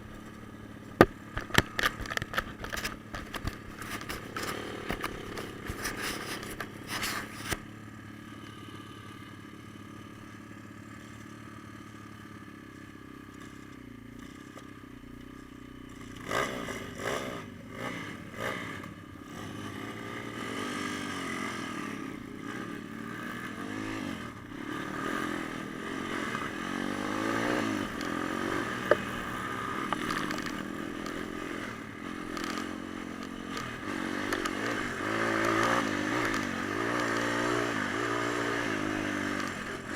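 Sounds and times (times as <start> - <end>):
motorbike engine revving: 0.0 - 10.8, 15.4 - 39.9
knocks and clatters: 0.9 - 7.6.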